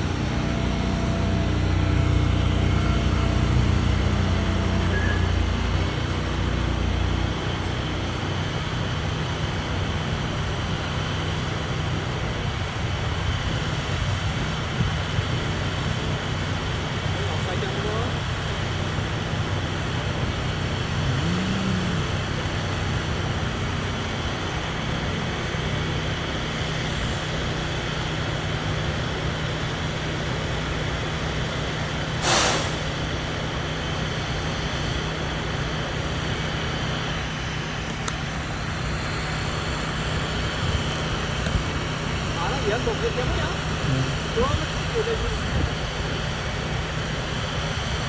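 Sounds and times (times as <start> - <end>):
truck engine running: 0.0 - 48.0
air hiss: 32.2 - 32.9.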